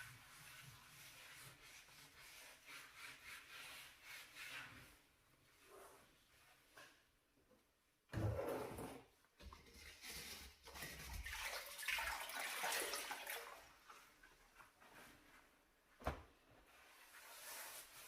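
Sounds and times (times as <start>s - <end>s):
water splashing and trickling: 10.0s - 14.1s.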